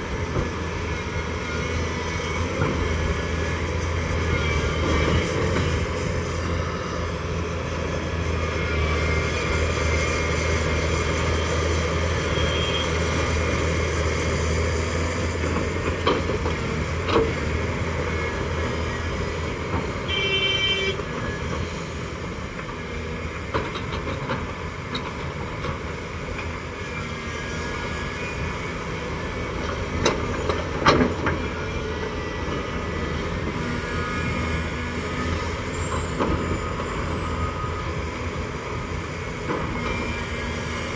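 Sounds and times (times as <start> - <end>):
excavator diesel engine: 0.0 - 40.9
short horn toot: 20.1 - 21.0.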